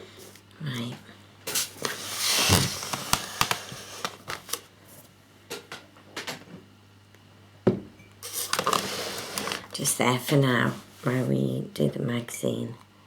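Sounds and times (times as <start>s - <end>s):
packaging rustling: 1.6s - 4.7s, 8.2s - 9.7s
knock on table: 7.7s - 7.9s.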